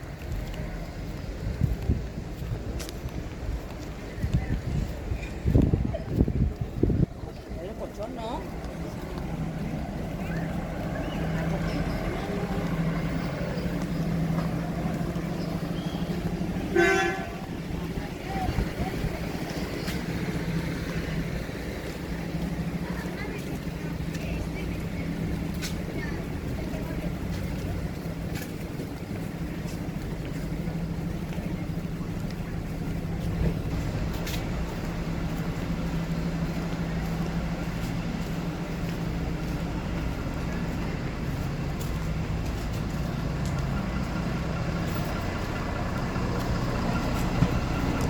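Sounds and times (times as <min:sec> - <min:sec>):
vehicle engine humming: 0:00.0 - 0:48.0
single-tone horn toot: 0:16.7 - 0:17.5.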